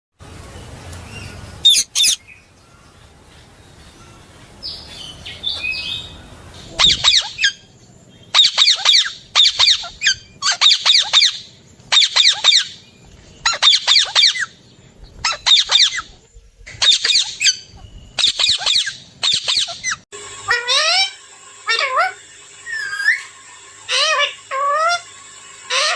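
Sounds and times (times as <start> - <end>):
parakeet squawking: 1.6 - 2.2, 6.8 - 7.6, 8.3 - 12.8, 13.4 - 14.6, 15.2 - 16.2, 16.8 - 23.3, 23.9 - 25.1, 25.7 - 25.9.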